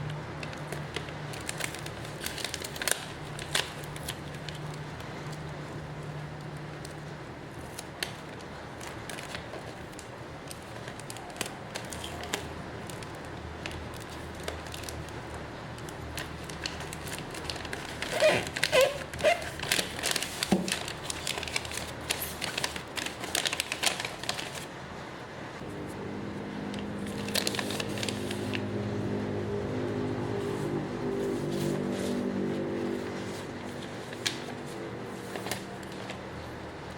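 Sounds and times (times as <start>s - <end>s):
plastic packaging crinkling: 0.3s - 5.8s, 6.4s - 24.7s, 26.9s - 28.7s, 33.2s - 36.9s.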